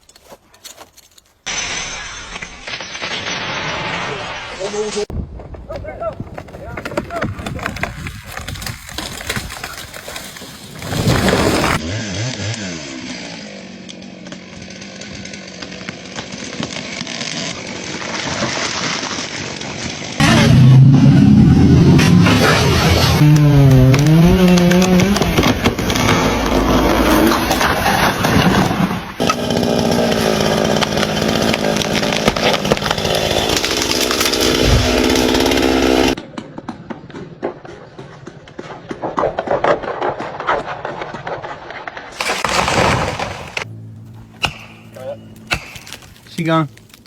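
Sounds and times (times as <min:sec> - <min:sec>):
chainsaw running at high revs: 0:11.2 - 0:17.8, 0:22.6 - 0:27.5, 0:29.2 - 0:36.2
sharp cracks and ticks: 0:38.6 - 0:47.0.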